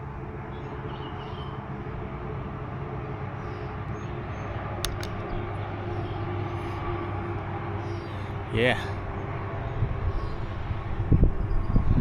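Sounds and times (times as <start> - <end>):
low mechanical drone: 0.0 - 12.0
short clicks: 4.8 - 5.4.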